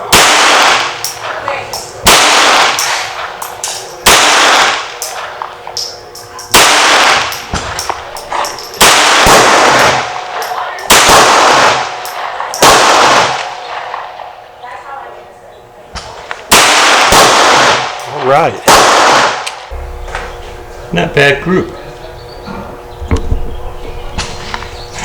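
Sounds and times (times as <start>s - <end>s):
pistol shots: 0.0s - 14.4s, 16.0s - 19.8s.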